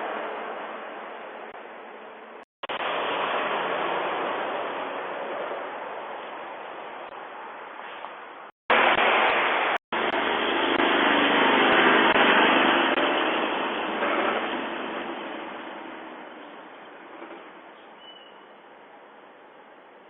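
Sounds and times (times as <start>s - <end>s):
truck driving past: 8.8s - 17.7s.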